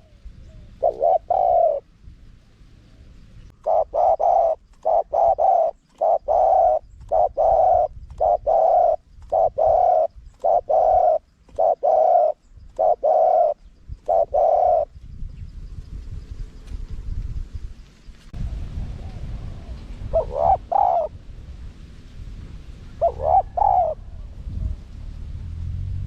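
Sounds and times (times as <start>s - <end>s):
dove cooing: 0.0s - 1.9s, 3.5s - 15.0s, 18.9s - 21.2s, 22.8s - 24.8s.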